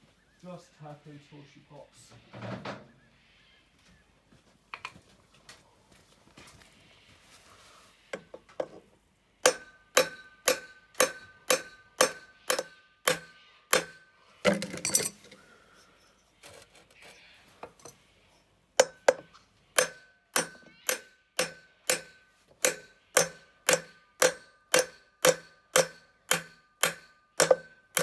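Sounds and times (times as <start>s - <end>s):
hammer tapping on metal: 9.5s - 15.1s, 18.8s - 28.0s
metallic clatter: 14.5s - 15.4s, 16.3s - 18.0s.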